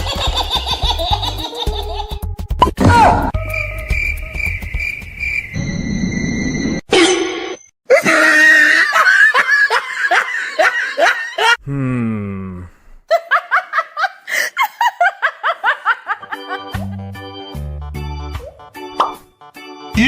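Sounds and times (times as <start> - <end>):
hearty laughter: 0.0 - 2.2, 7.9 - 11.6, 13.1 - 17.2.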